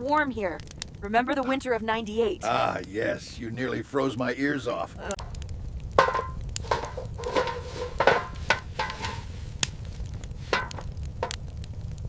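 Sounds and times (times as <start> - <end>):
irregular knocks and clinks: 5.2 - 9.4, 10.4 - 11.4.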